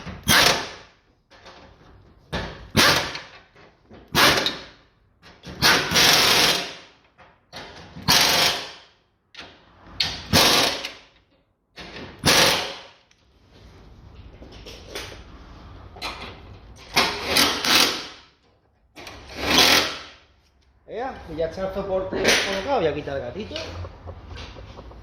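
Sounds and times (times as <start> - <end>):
impact wrench bursts: 5.5 - 7.0, 7.9 - 8.9, 10.1 - 11.0, 12.2 - 13.0, 16.9 - 18.4, 19.0 - 20.2.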